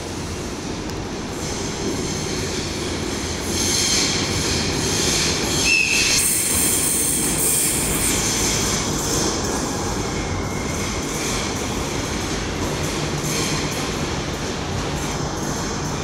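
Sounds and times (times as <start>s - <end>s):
electric train passing: 0.0s - 13.0s
hissing rush of train cars: 0.0s - 16.0s
wheel or brake squeal: 5.0s - 8.3s.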